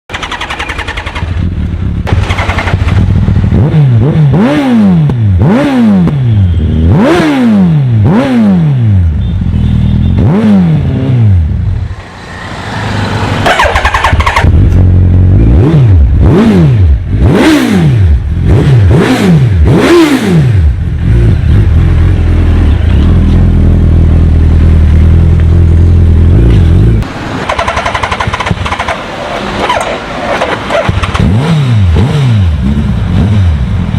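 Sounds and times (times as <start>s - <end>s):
motorcycle engine idling: 0.1s - 3.6s
motorcycle engine revving: 0.1s - 33.9s.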